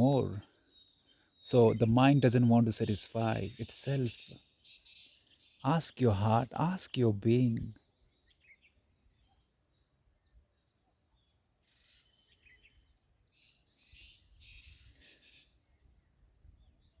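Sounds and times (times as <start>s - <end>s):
faint birdsong: 0.0s - 17.0s.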